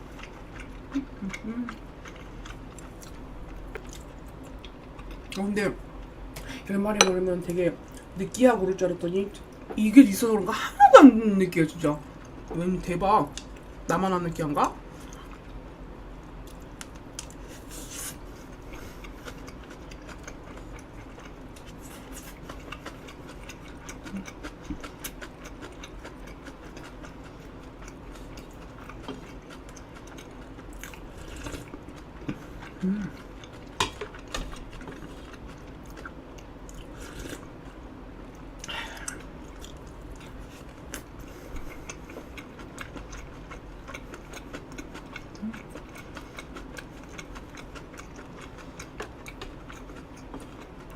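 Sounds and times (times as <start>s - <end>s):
person chewing: 0.0s - 5.4s, 16.4s - 50.9s.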